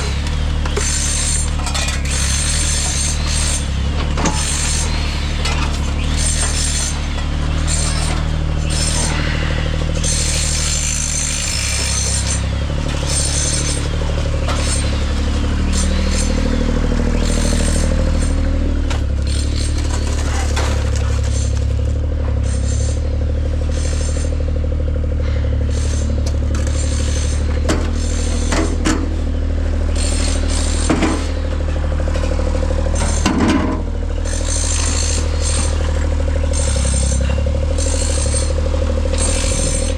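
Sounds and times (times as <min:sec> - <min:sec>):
large engine running: 0:00.0 - 0:39.9
knocks and scrapes: 0:25.7 - 0:29.2, 0:30.0 - 0:31.4.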